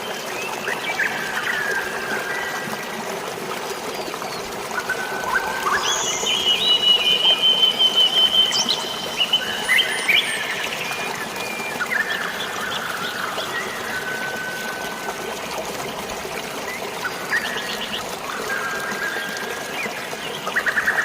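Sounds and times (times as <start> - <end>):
water trickling and pouring: 0.0 - 21.0
birds chirping and whistling: 5.3 - 14.1.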